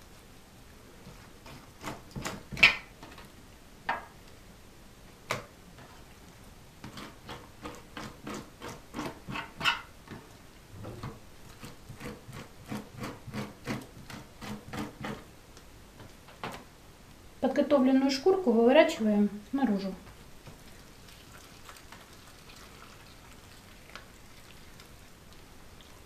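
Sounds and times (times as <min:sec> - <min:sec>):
metal spoon scraping fish skin: 0:11.6 - 0:15.2.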